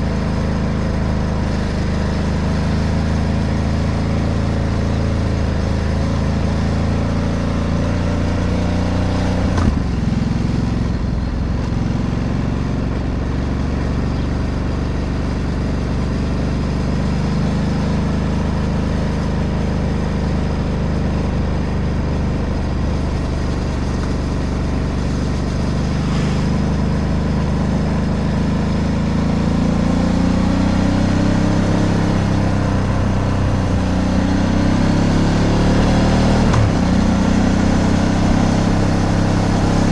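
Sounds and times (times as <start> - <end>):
motorcycle engine running: 0.0 - 39.9
sharp knock: 9.5 - 10.0.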